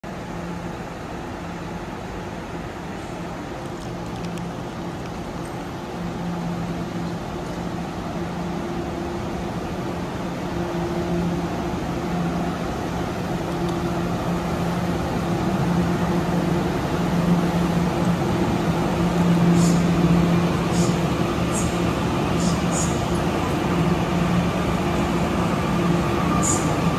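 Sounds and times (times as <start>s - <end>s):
electric train humming: 0.1s - 26.9s.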